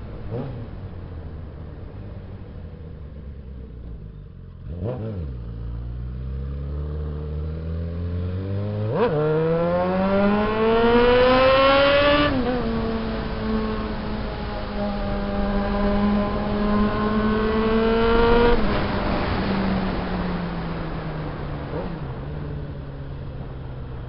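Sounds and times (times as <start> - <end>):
motorcycle engine revving: 0.0 - 2.2, 3.9 - 20.2.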